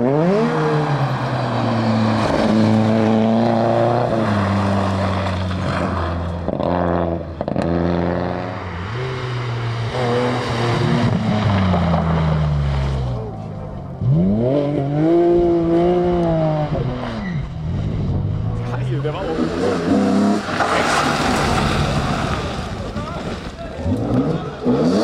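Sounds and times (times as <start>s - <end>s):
rally car engine revving: 0.0s - 25.0s.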